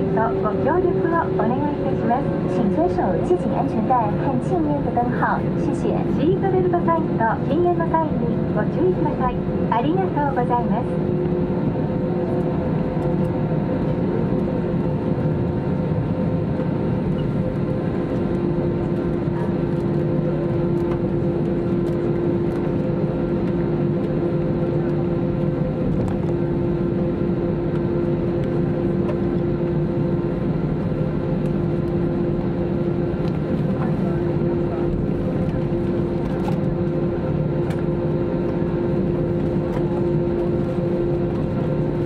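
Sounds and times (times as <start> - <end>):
aircraft engines idling: 0.0 - 42.0.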